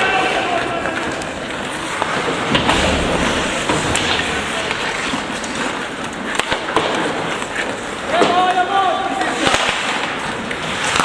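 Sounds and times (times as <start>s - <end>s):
skates scraping on ice: 0.0s - 8.4s, 9.1s - 11.0s
hockey sticks and puck clacking: 0.0s - 11.0s.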